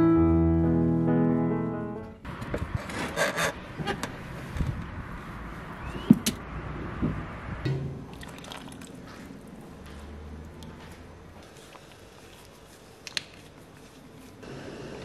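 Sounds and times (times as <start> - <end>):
water pouring into a pan: 8.1 - 9.0.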